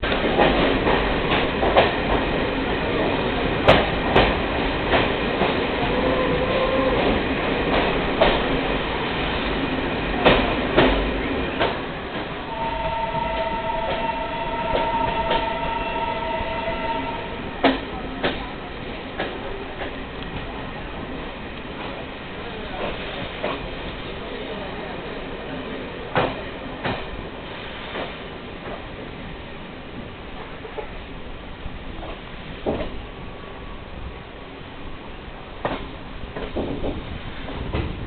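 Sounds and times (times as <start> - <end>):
train rumbling on rails: 0.0 - 38.0
steady multi-pitch tone: 12.5 - 17.5.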